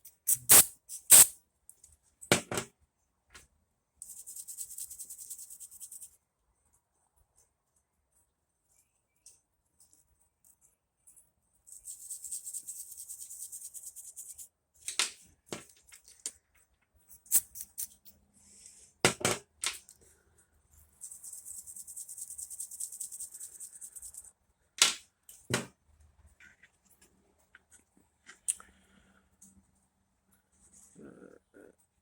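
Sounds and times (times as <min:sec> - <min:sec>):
aerosol spray hissing: 0:00.3 - 0:01.3.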